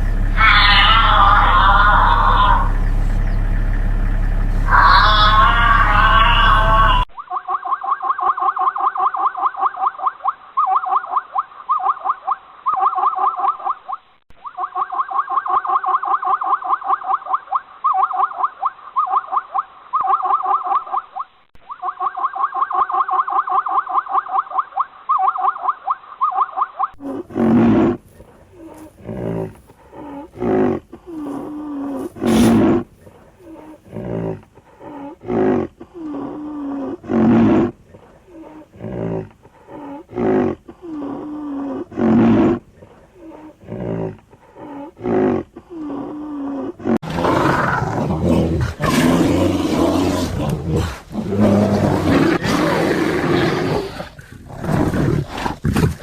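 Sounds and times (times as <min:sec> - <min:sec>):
deep animal calls: 0:00.0 - 0:56.0
noisy animal calls: 0:00.0 - 0:56.0
squeaky animal chattering: 0:00.2 - 0:03.5, 0:04.6 - 0:28.9, 0:32.0 - 0:37.7.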